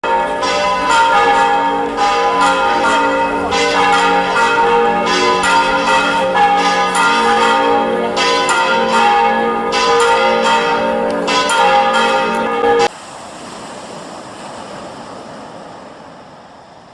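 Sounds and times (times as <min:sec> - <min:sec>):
church bells ringing: 0:00.0 - 0:12.9.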